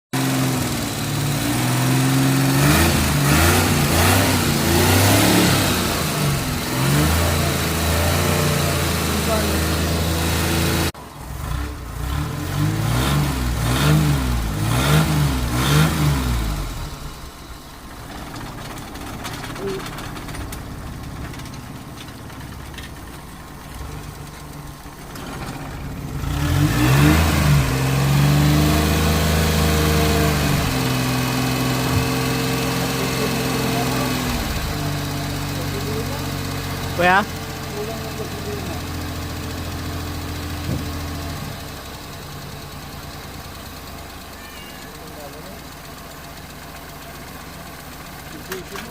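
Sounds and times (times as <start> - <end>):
small engine idling and revving: 0.1 - 48.9.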